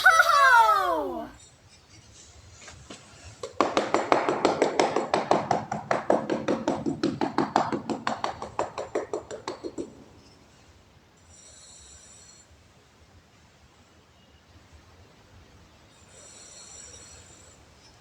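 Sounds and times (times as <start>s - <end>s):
rapid even tapping: 3.4s - 10.3s.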